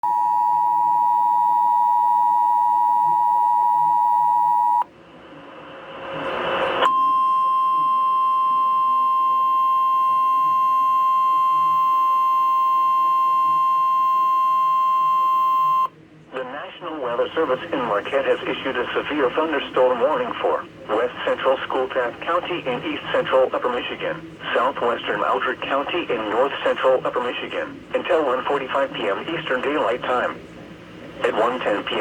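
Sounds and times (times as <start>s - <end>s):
two-tone alarm: 0.0s - 4.8s, 6.8s - 15.9s.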